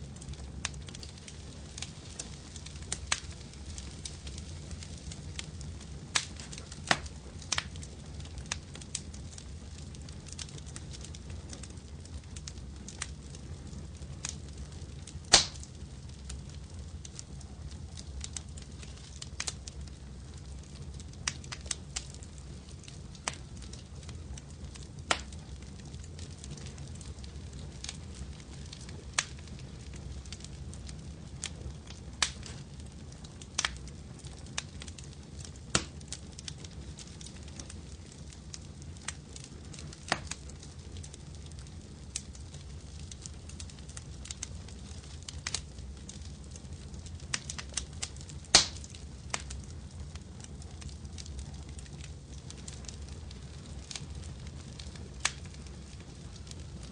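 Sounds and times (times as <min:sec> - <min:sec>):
wood fire crackling: 0:00.0 - 0:56.9.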